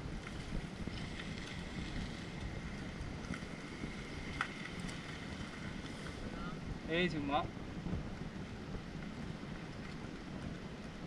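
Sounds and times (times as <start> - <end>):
low engine rumble: 0.0 - 11.0
wind buffeting microphone: 0.0 - 11.0.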